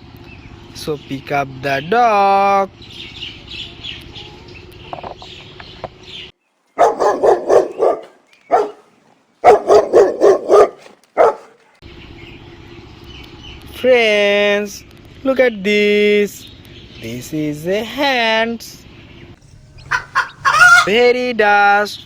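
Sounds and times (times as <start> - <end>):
dog barking: 6.8 - 11.8, 19.8 - 20.9.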